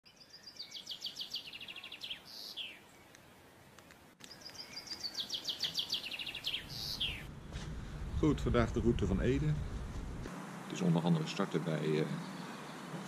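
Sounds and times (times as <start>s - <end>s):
songbird singing: 0.1s - 7.3s, 10.6s - 13.0s.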